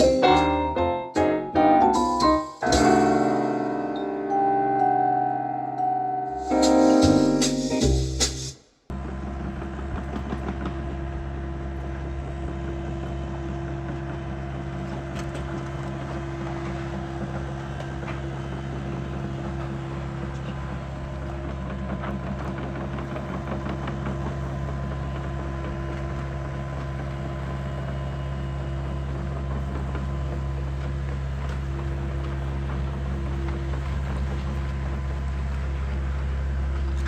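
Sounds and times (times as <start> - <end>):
engine humming at low speed: 8.9 - 37.0.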